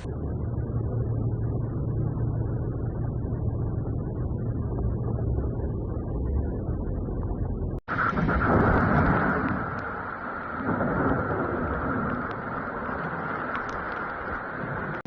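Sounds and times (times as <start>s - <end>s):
muffled rumble of vehicles: 0.0s - 15.0s
steady hiss of water: 7.9s - 15.0s.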